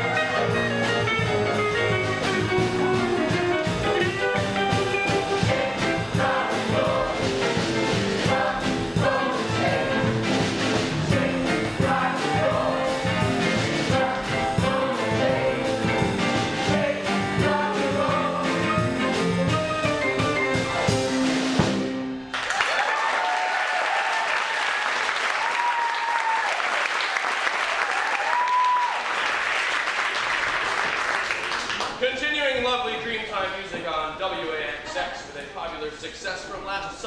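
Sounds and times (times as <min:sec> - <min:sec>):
rock and roll band with group singing: 0:02.2 - 0:20.7
audience applauding: 0:22.3 - 0:32.0
audience whooping: 0:22.3 - 0:32.0.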